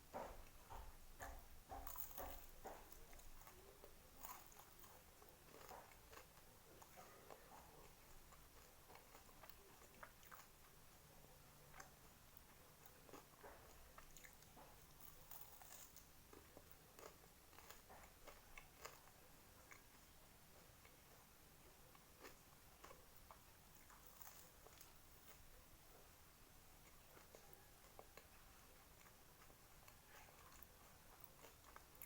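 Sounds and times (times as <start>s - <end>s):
chewing with wet clicks: 0.2s - 32.0s.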